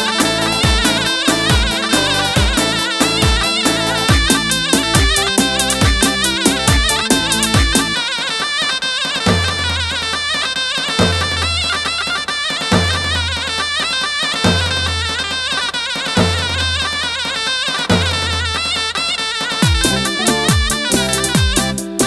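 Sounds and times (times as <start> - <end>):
deep bass drum strokes: 0.0 - 8.0
reedy wind instrument melody: 0.0 - 22.0.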